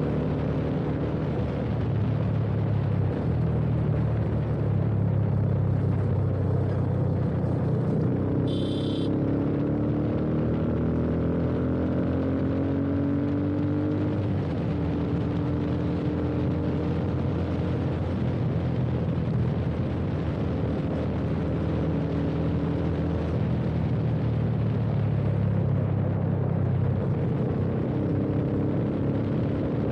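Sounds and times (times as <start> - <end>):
motorcycle engine running: 0.0 - 9.7
wind rush on microphone: 13.6 - 29.9.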